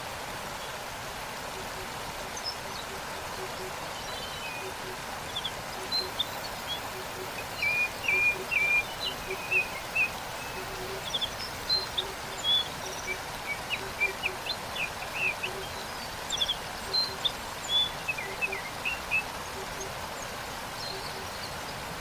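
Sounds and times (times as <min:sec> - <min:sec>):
waterfall rushing: 0:00.0 - 0:22.0
songbirds chirping and trilling: 0:01.6 - 0:22.0.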